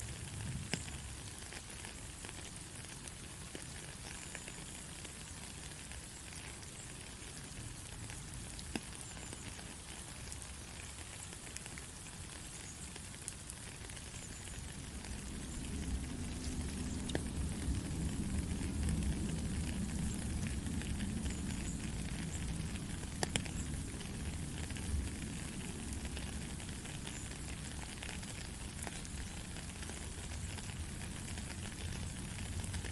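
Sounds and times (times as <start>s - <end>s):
steady rain patter: 0.0s - 32.9s
sharp drip clicks: 0.3s - 32.9s
low rumble: 14.6s - 27.1s.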